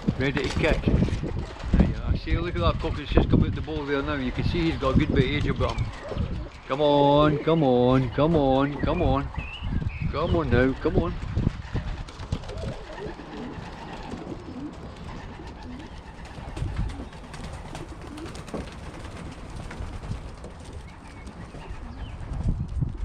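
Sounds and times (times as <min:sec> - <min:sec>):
pigeons cooing: 0:04.3 - 0:22.6.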